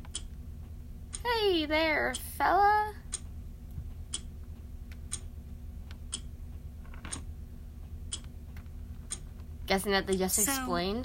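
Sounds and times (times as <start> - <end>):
low steady hum: 0.0 - 11.0
clock ticking: 0.1 - 0.3, 1.1 - 1.3, 4.1 - 4.3, 5.1 - 5.3, 6.1 - 6.3, 8.1 - 8.3, 10.1 - 10.6.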